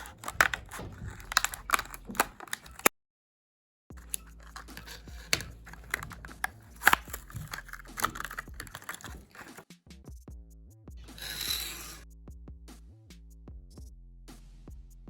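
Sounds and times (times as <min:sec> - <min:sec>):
blister pack crinkling and clicking: 0:00.0 - 0:02.9, 0:04.0 - 0:09.6
plastic snapping: 0:00.0 - 0:02.9, 0:04.0 - 0:09.6.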